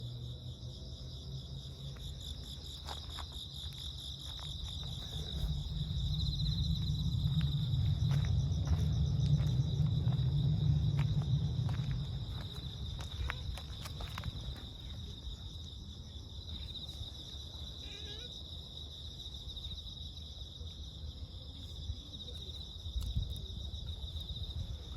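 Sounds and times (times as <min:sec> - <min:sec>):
insects trilling: 0:00.0 - 0:24.9
low rumble: 0:04.5 - 0:15.0.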